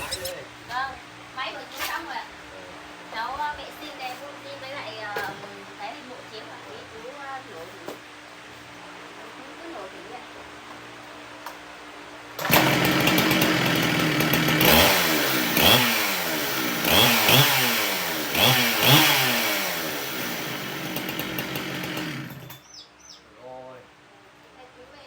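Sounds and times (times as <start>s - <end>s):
chainsaw engine revving: 0.0s - 0.4s, 12.4s - 22.6s.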